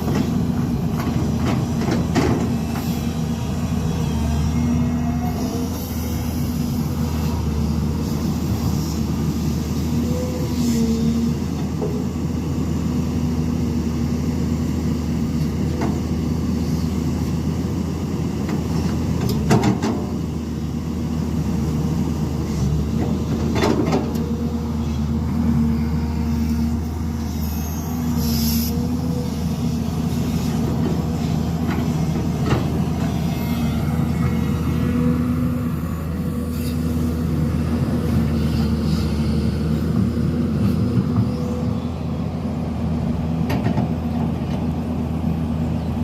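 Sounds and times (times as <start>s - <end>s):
construction machinery engine running: 0.0s - 46.0s.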